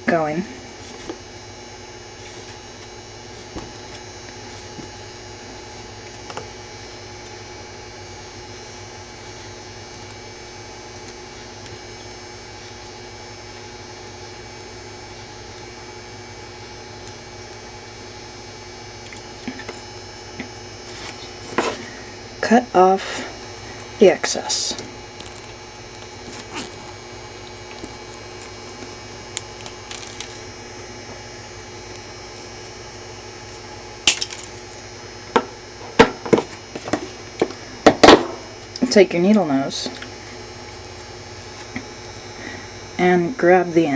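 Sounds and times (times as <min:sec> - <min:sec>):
electrical hum: 0:00.0 - 0:43.9.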